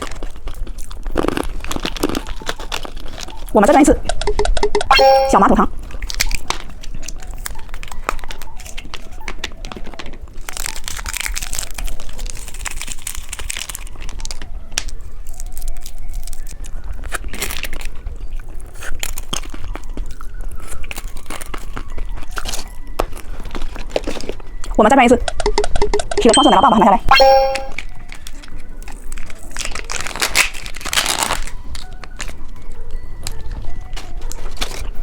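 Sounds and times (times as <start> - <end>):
plastic packaging crinkling: 0.0 - 3.6, 10.4 - 14.4, 29.5 - 32.3.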